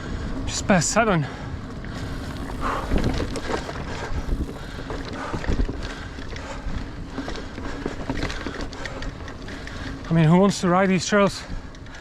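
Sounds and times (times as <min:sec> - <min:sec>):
bike tyres rumbling on dirt: 0:01.7 - 0:10.3
wind on microphone: 0:01.9 - 0:06.0
bike knocks and rattles: 0:01.9 - 0:09.8.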